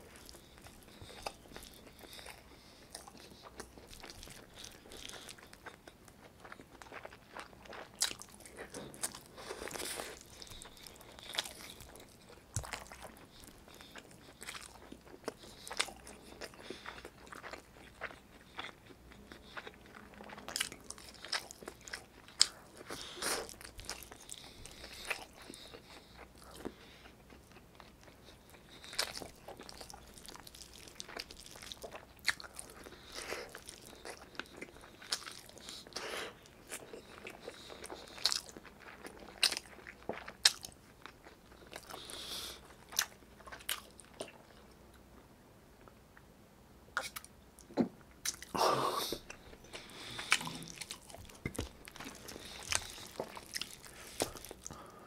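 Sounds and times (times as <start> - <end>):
person chewing wetly: 0.0 - 44.7, 47.0 - 55.0.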